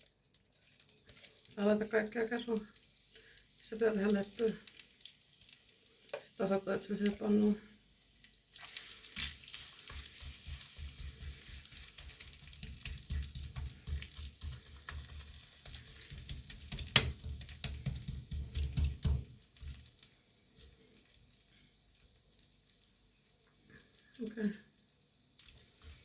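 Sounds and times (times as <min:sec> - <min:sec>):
batter sizzling in frying pan: 0:00.0 - 0:26.0
spoon knocking and scraping pan: 0:09.2 - 0:19.9.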